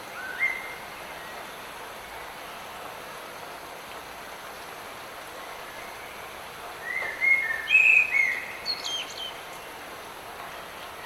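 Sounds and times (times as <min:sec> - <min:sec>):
light rain hiss: 0:00.0 - 0:11.0
bird singing whistled notes: 0:00.2 - 0:00.8, 0:06.8 - 0:09.4.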